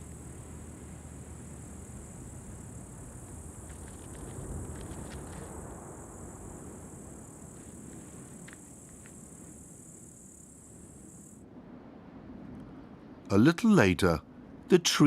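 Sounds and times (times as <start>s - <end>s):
insects chirring: 0.0s - 12.2s
faint ticks: 2.8s - 5.7s, 7.5s - 9.3s.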